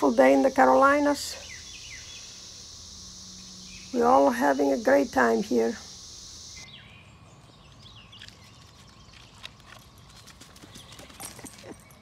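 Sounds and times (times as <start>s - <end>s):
cicadas buzzing: 0.0s - 6.9s.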